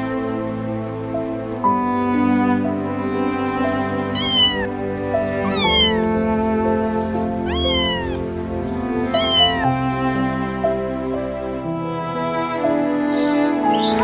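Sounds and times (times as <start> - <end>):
cat meowing: 4.1 - 9.7
slow sad string music: 4.2 - 9.8.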